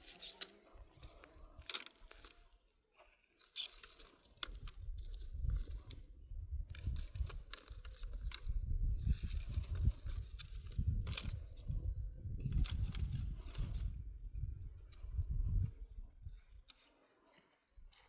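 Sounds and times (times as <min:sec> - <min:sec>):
crunching and crackling: 0:00.0 - 0:06.1, 0:06.7 - 0:11.7.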